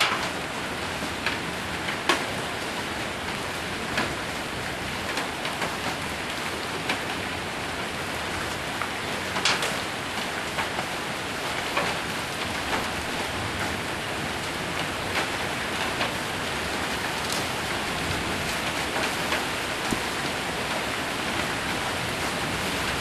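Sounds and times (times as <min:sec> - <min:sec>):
hailstones knocking on a roof: 0:00.0 - 0:23.0
heavy rain on a roof: 0:00.0 - 0:23.0.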